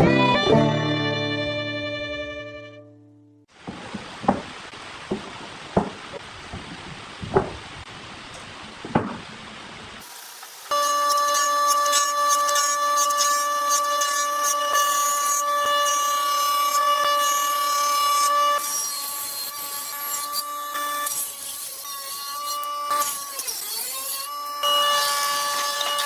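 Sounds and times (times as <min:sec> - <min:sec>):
power tool motor whining: 0:10.0 - 0:26.0.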